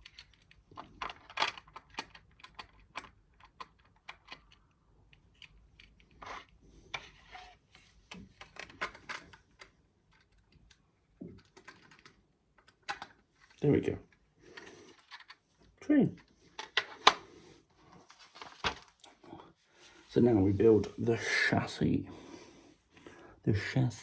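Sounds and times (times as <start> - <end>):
plastic bricks clicking: 0.0 - 7.1, 8.2 - 15.4, 16.2 - 17.2.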